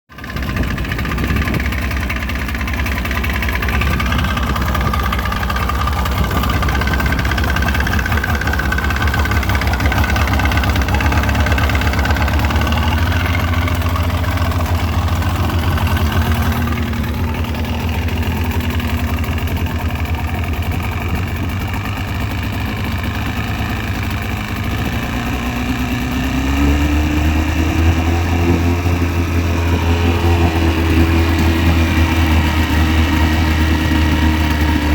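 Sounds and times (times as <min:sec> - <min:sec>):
engine knocking: 0:00.1 - 0:34.9
outboard motor running: 0:00.1 - 0:34.9.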